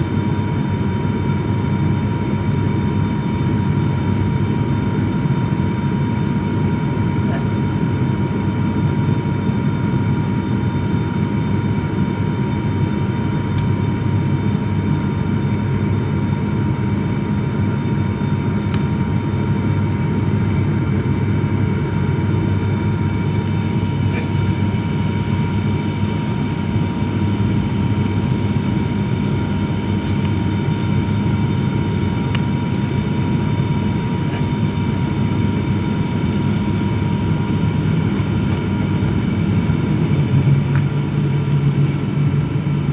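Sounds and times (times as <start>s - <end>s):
airliner engines droning: 0.0s - 42.9s
high whine: 17.8s - 42.9s.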